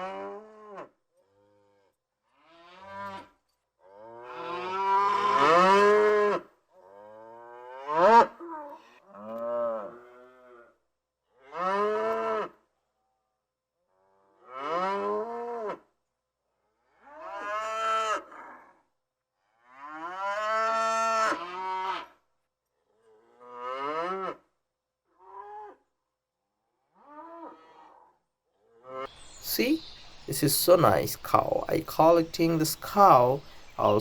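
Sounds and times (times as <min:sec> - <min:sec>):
cow mooing: 0:00.0 - 0:10.7, 0:11.4 - 0:12.6, 0:14.4 - 0:15.8, 0:23.1 - 0:24.4, 0:27.0 - 0:28.2.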